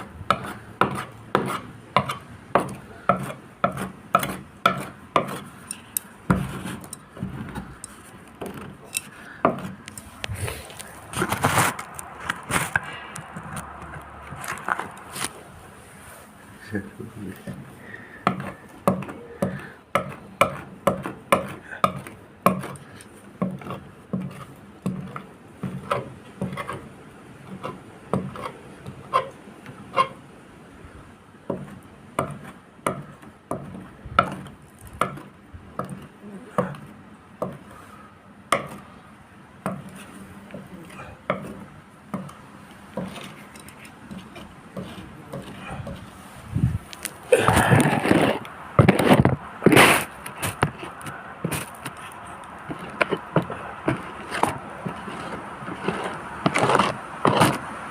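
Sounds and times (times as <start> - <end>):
taps on hard surface: 18.2 - 22.7.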